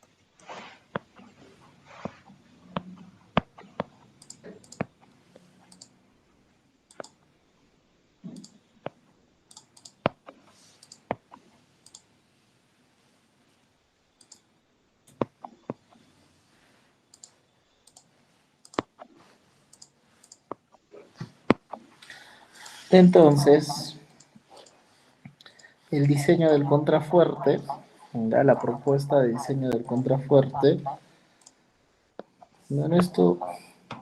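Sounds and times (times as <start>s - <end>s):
computer mouse clicks: 2.8s - 6.0s, 6.9s - 7.2s, 8.2s - 12.1s, 14.2s - 14.5s, 17.1s - 26.6s.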